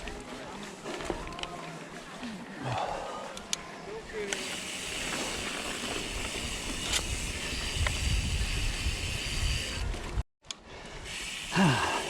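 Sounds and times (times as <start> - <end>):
bike clicks: 4.3 - 11.7
wind rush on microphone: 6.4 - 10.2.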